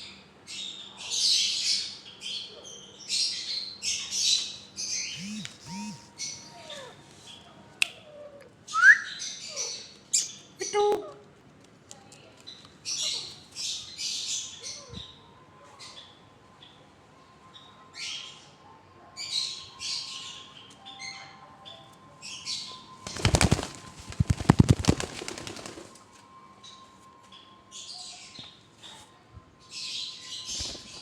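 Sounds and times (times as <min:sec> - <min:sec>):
parrot wings flapping: 0:23.0 - 0:26.0.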